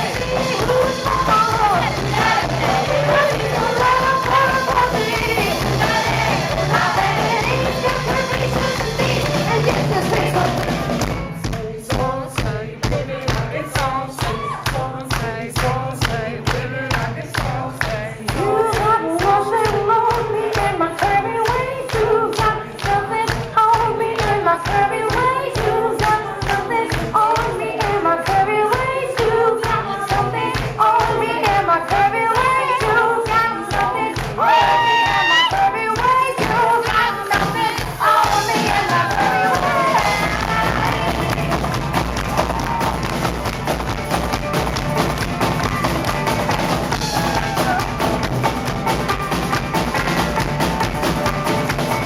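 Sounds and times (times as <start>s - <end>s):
person singing: 0.0s - 10.8s, 11.5s - 41.9s
live band music: 0.0s - 14.2s, 18.3s - 52.0s
thumping drumbeat: 0.0s - 14.4s, 35.9s - 52.0s.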